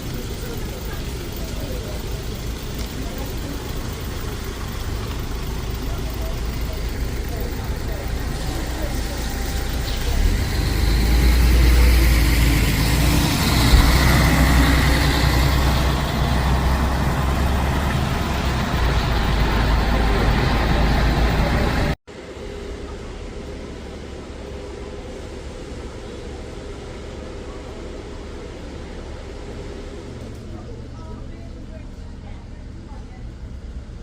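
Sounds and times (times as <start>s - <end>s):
tyres hissing: 0.0s - 22.0s
bus engine rumbling: 0.0s - 34.0s
traffic noise: 0.0s - 34.0s.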